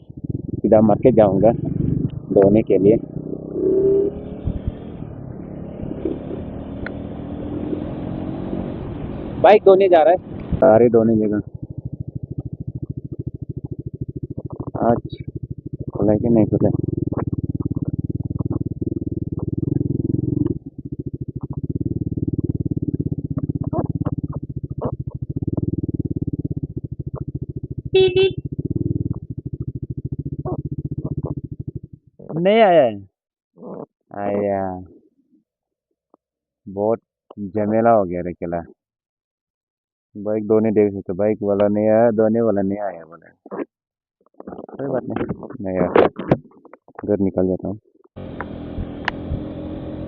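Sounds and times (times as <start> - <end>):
motorcycle engine running: 0.0 - 32.6, 48.2 - 50.0
horn beeping: 27.9 - 28.5.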